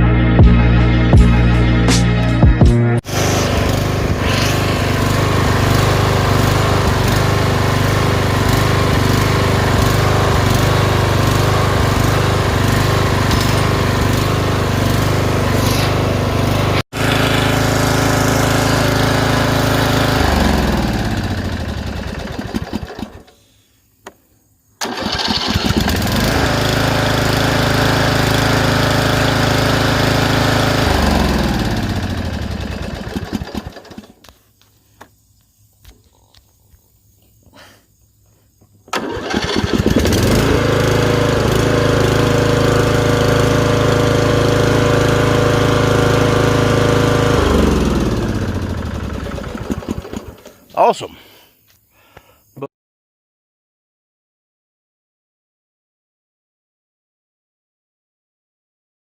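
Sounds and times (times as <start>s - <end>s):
lawn mower engine running: 3.0s - 23.4s, 24.8s - 34.4s, 38.9s - 51.0s.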